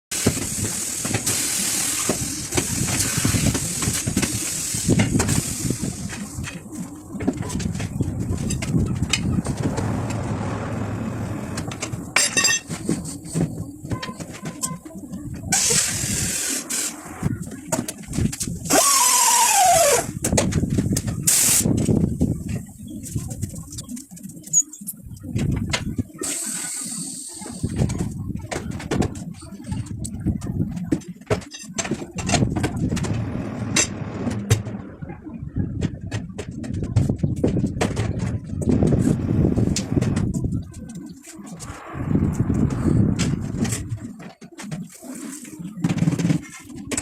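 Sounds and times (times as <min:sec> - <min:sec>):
compressed air hissing: 0:00.2 - 0:06.4
knocks and clatter of machine work: 0:11.5 - 0:15.9, 0:27.6 - 0:34.9
air tool whine: 0:18.7 - 0:20.1.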